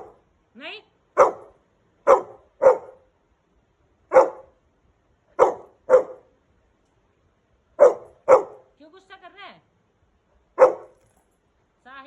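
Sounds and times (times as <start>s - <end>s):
dog barking: 0.0s - 0.2s, 1.2s - 3.0s, 4.1s - 4.6s, 5.4s - 6.3s, 7.8s - 8.7s, 10.6s - 11.0s.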